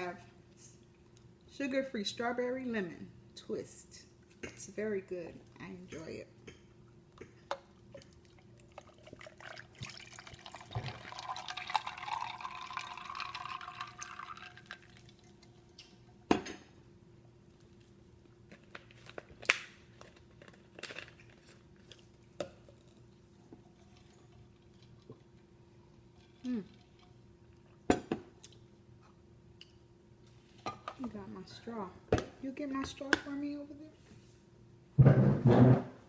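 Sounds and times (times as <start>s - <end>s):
drink pouring into glass: 8.0s - 16.2s.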